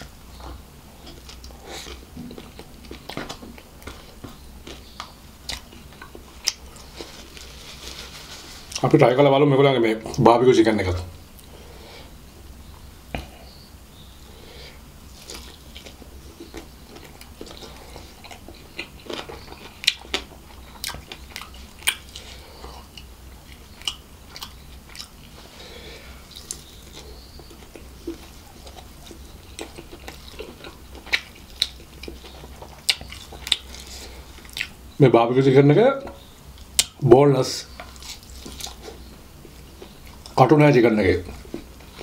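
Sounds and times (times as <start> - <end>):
person chewing: 0.0 - 8.8, 14.7 - 34.8, 37.7 - 40.4, 41.3 - 42.0
faint low hum: 0.0 - 42.0.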